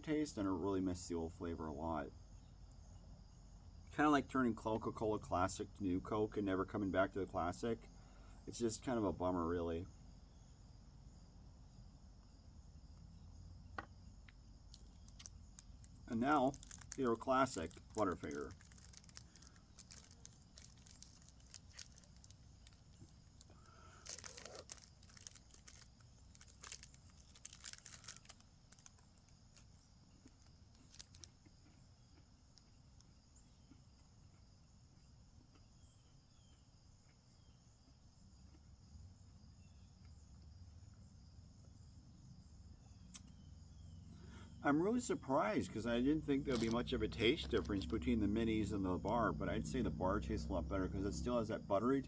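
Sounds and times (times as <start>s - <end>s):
plastic wrapper crinkling: 14.7s - 31.4s, 46.4s - 48.0s.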